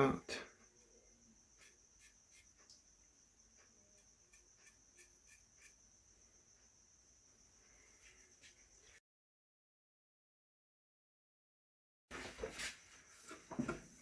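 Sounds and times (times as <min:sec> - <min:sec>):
faint ticks: 0:01.6 - 0:05.8.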